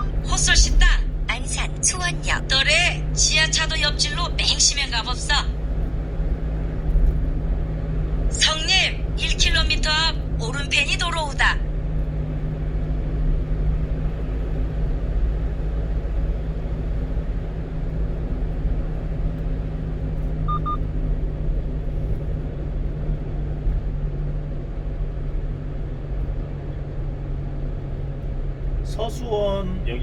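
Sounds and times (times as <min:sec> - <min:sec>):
truck engine and road noise: 0:00.0 - 0:30.0
electronic double beep: 0:20.5 - 0:20.8.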